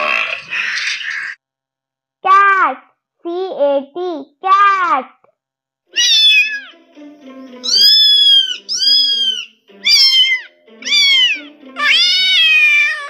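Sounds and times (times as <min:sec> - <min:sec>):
cat meowing: 0:05.9 - 0:06.7, 0:07.6 - 0:13.0.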